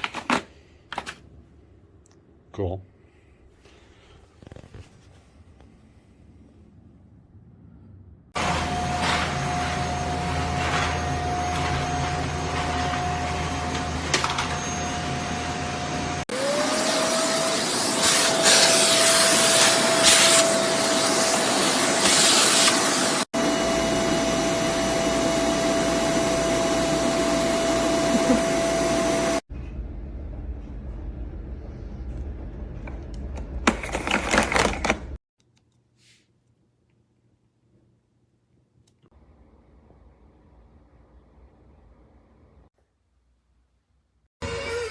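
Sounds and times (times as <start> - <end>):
vacuum cleaner running: 8.4 - 29.5.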